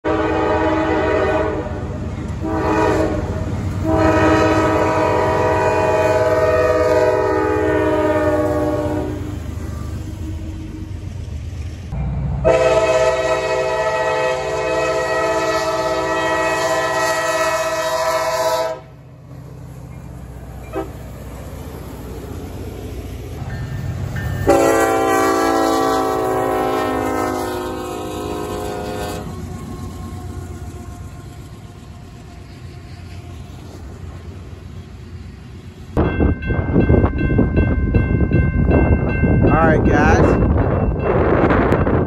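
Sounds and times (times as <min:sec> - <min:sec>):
locomotive air horn chord: 0:00.0 - 0:10.5, 0:12.4 - 0:19.0, 0:20.7 - 0:21.0, 0:24.4 - 0:29.8.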